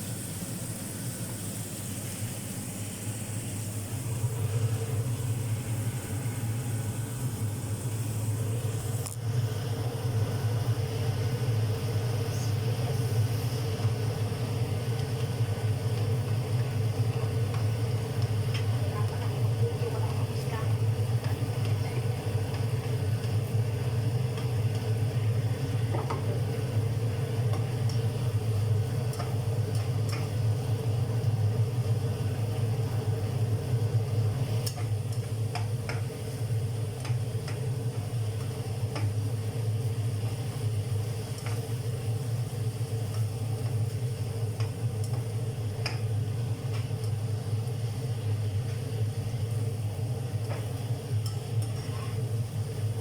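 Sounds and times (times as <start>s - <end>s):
steady low hum: 0.0s - 53.0s
food stirred in a pan: 12.3s - 49.6s, 50.2s - 52.4s.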